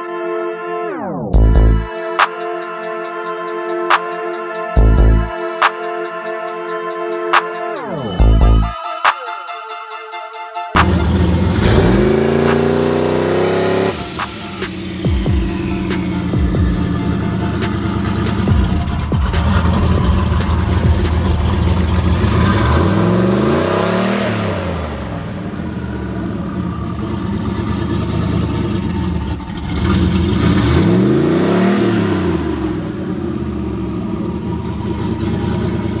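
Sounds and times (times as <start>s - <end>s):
vehicle engine revving: 10.8s - 36.0s.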